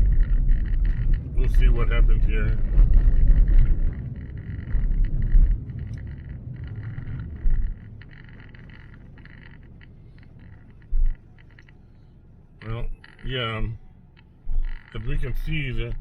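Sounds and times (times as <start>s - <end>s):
truck rumbling over rough ground: 0.0s - 11.9s
dull low bumps: 0.0s - 16.0s.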